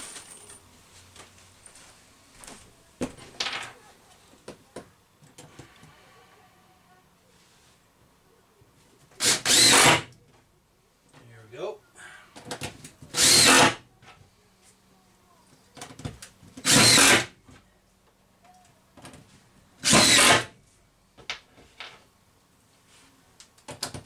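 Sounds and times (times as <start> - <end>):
drill driving screws: 9.2 - 10.1, 13.1 - 13.8, 16.6 - 17.3, 19.8 - 20.5.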